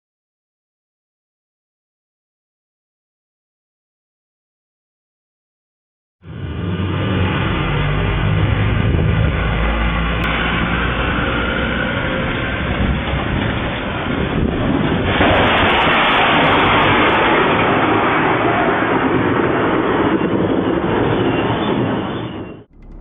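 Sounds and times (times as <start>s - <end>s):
loud rushing roar: 6.2s - 21.0s, 22.6s - 23.0s.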